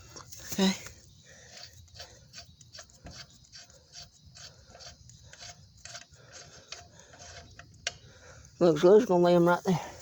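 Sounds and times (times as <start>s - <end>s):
lug wrench rasping: 1.4s - 9.3s.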